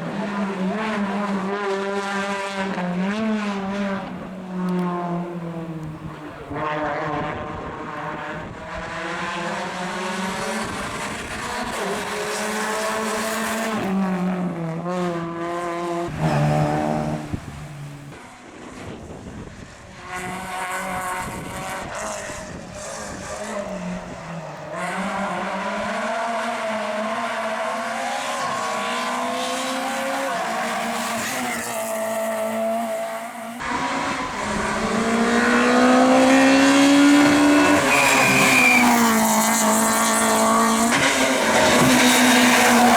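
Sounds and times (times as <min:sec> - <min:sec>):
car accelerating hard: 0:00.0 - 0:42.9
rally car engines revving: 0:00.0 - 0:42.9
tyre squeal: 0:37.2 - 0:39.6.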